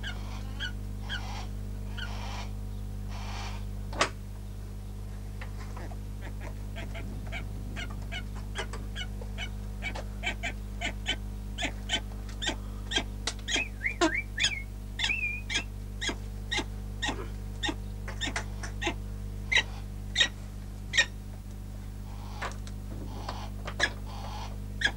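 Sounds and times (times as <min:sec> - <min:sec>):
steady electrical hum: 0:00.0 - 0:24.9
bird calling in sharp chips: 0:05.8 - 0:21.2.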